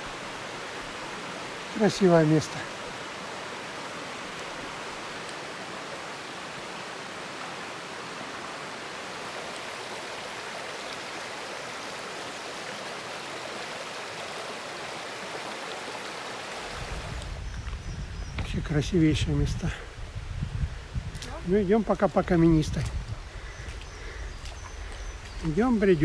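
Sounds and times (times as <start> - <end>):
stream flowing over rocks: 0.0 - 17.4.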